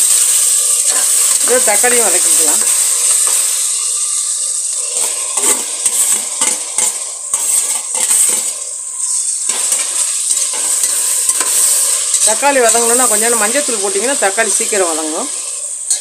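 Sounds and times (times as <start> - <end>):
onions sizzling in hot oil: 0.0 - 16.0
spatula scraping and clinking: 4.8 - 13.2.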